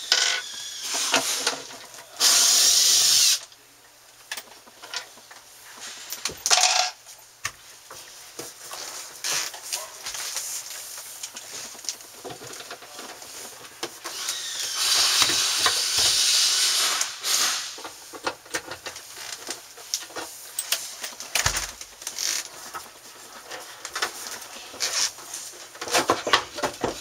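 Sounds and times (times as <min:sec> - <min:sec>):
loud hissing scrape: 0:14.1 - 0:17.9.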